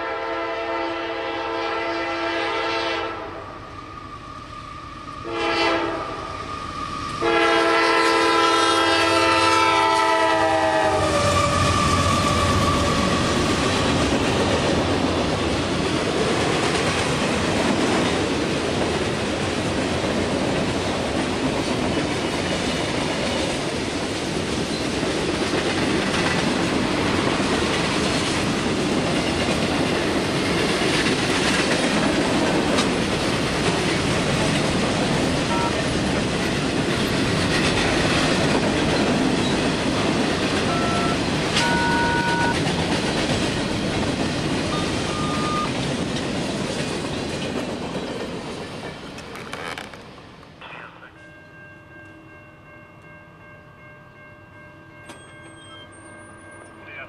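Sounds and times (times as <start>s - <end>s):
train wheels rumbling and clattering: 6.3s - 50.6s
brief high tones: 40.7s - 42.6s, 45.1s - 45.7s.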